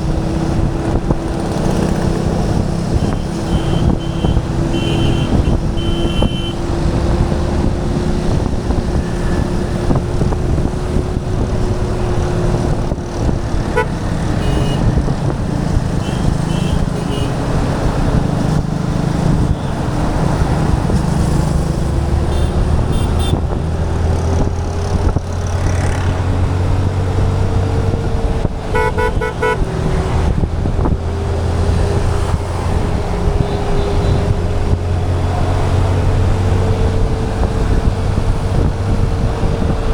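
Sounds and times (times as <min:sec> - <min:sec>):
wind and road noise: 0:00.0 - 0:39.9
car horns tooting: 0:02.9 - 0:06.6, 0:13.6 - 0:15.0, 0:15.9 - 0:17.4, 0:22.3 - 0:23.6, 0:28.7 - 0:30.0.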